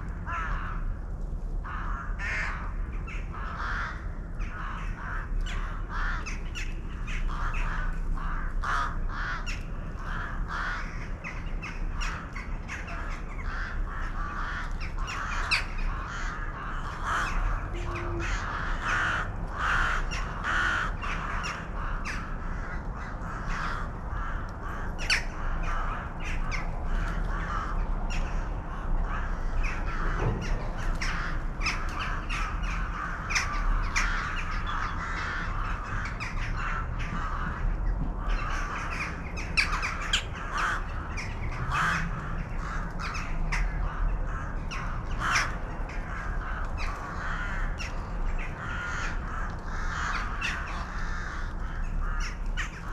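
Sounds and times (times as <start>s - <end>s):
flock of birds calling: 1.7s - 52.9s.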